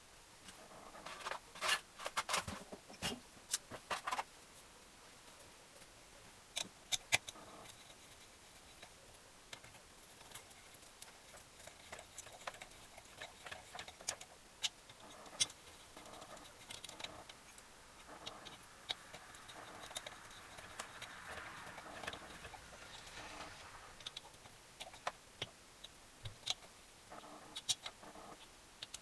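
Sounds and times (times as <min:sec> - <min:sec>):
tools clicking and tapping: 0:09.5 - 0:23.1
soft scraping: 0:19.0 - 0:24.2.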